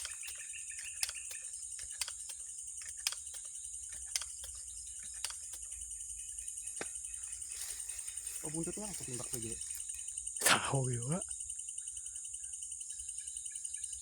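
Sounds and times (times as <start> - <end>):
sharp click: 0.0 - 5.7
night insects droning: 0.0 - 14.0.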